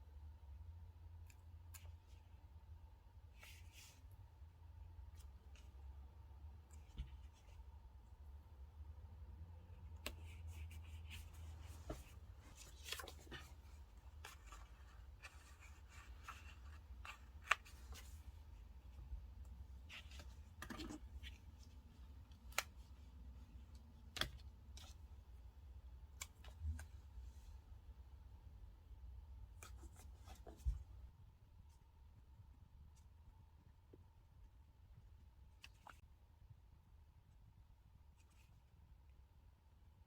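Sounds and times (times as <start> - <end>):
paper and stickers handled: 9.7 - 27.6.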